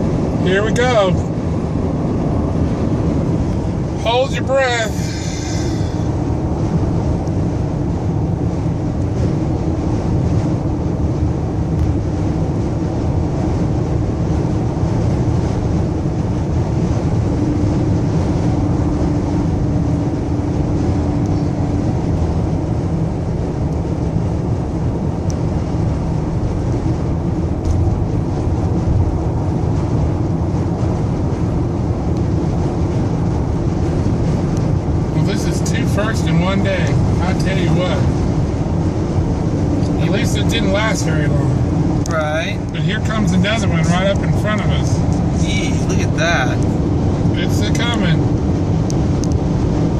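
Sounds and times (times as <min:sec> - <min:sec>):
vehicle road and engine noise: 0:00.0 - 0:49.9.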